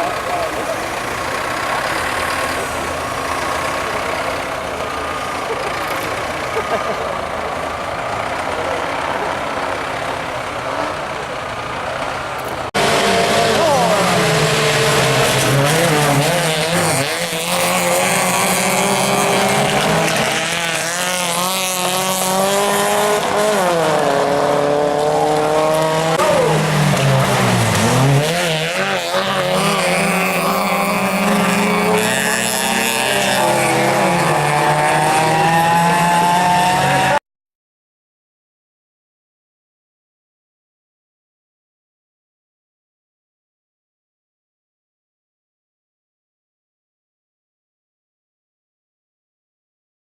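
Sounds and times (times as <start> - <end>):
racing car engine at full throttle: 0.0 - 37.2.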